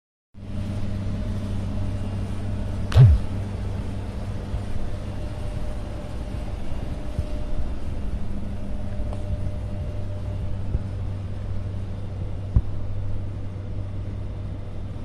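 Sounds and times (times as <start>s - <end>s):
low rumble with hum: 0.4s - 15.0s
loud thump: 2.9s - 3.3s.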